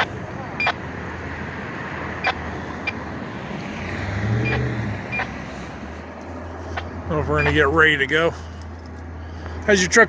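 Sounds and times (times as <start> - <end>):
diesel truck engine idling: 4.4 - 10.0.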